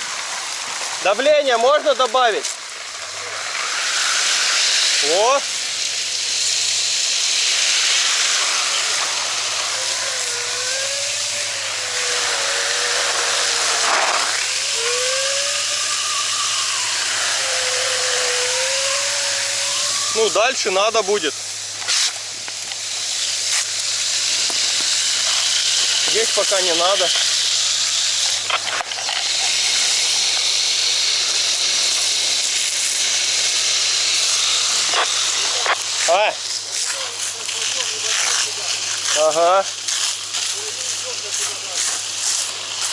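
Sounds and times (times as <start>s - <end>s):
fire hose spraying water: 0.0s - 42.9s
wavering whistle: 9.7s - 13.6s, 14.4s - 20.4s.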